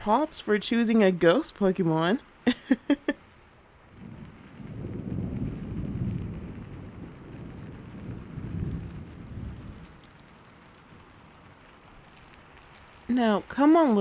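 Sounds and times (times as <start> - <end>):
steady rain: 0.0 - 14.0
rolling thunder: 3.9 - 13.1.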